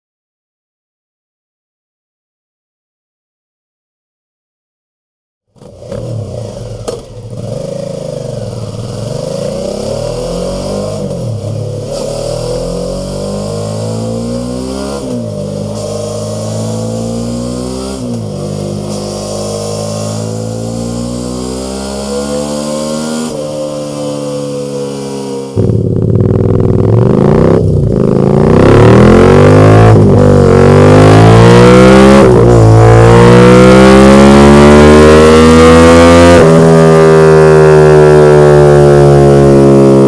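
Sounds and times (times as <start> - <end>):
motorcycle engine idling: 5.7 - 9.6, 25.6 - 28.4.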